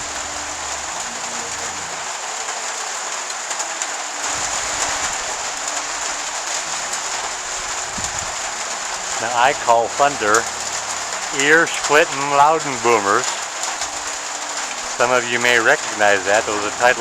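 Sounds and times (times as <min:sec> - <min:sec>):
heavy rain on a roof: 0:00.0 - 0:17.0
thunder rumbling: 0:04.2 - 0:14.2.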